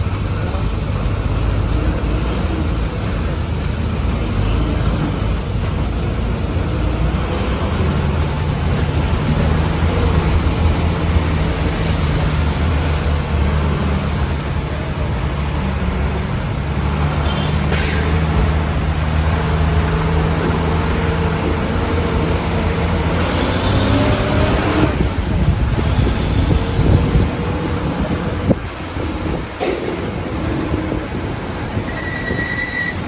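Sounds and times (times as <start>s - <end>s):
road noise: 0.0s - 33.0s
short hiss: 17.7s - 18.6s.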